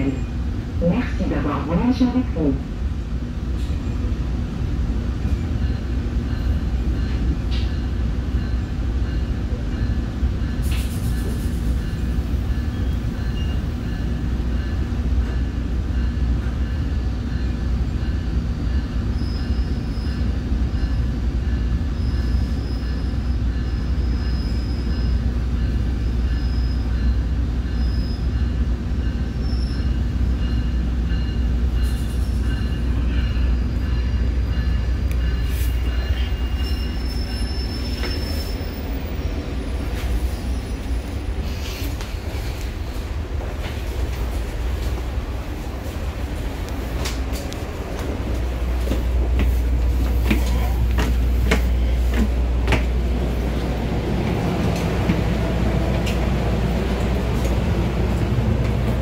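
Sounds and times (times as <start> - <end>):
train low rumble: 0.0 - 59.0
high-pitched wheel squeal: 36.2 - 38.8.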